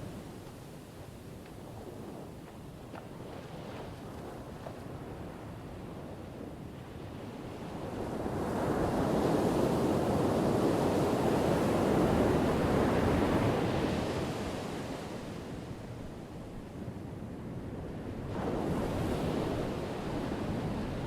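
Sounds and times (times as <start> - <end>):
ocean waves breaking on shore: 18.0 - 21.0.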